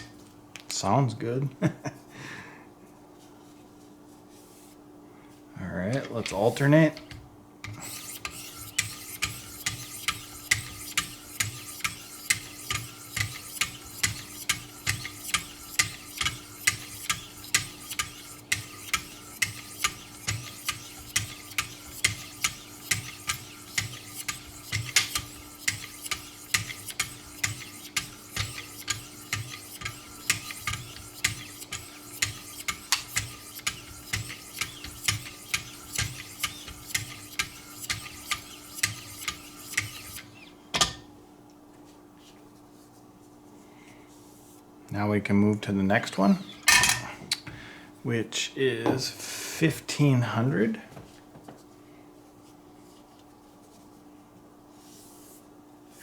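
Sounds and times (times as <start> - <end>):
sharpening stones scraping knife edge: 7.7 - 40.2.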